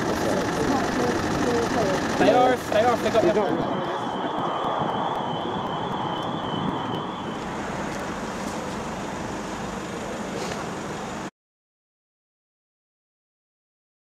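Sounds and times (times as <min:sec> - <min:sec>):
car engine running: 0:00.0 - 0:04.4, 0:05.6 - 0:11.3
thin high whine: 0:00.0 - 0:11.3
wind rumble on microphone: 0:03.1 - 0:08.3.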